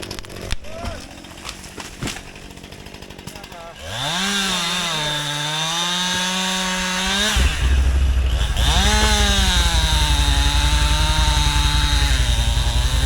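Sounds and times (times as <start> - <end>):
chainsaw revving: 0.0 - 13.0
loud low throbbing: 6.4 - 13.0.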